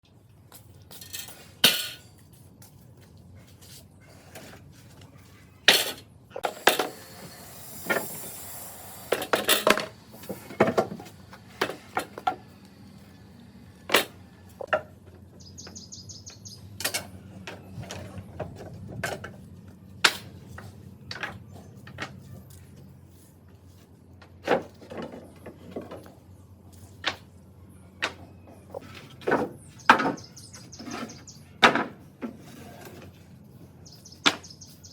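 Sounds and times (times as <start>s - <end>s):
wooden boards and tools clacking: 9.1s - 12.4s, 24.2s - 26.2s, 28.0s - 33.2s.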